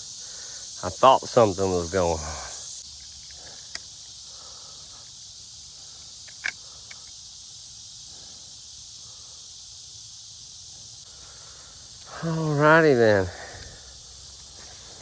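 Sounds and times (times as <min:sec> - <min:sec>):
chorus of insects: 0:00.0 - 0:15.0
sharp click: 0:06.2 - 0:07.1.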